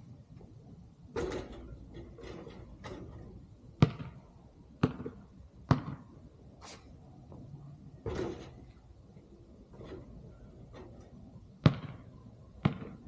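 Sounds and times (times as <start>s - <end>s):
basketball bouncing: 1.1s - 3.1s, 3.8s - 6.1s, 10.8s - 13.0s.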